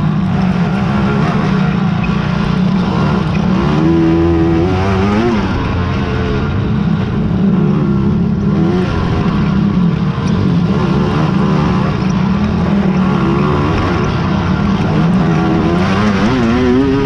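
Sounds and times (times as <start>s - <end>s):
quad engines running hard: 0.0s - 17.0s.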